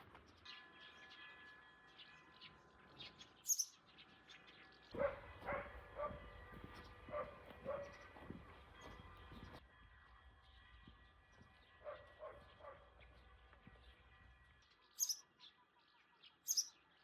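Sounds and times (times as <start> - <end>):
small birds chirping: 0.0 - 9.6, 10.4 - 17.0
dog yipping: 5.0 - 6.2, 7.1 - 8.0.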